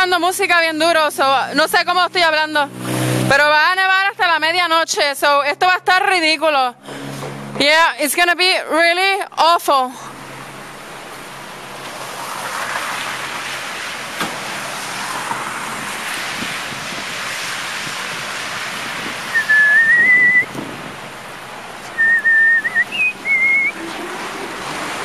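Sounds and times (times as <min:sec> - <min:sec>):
street traffic: 0:00.0 - 0:25.0
wind rushing: 0:14.0 - 0:25.0
person whistling a tune: 0:19.3 - 0:20.5, 0:22.0 - 0:23.8.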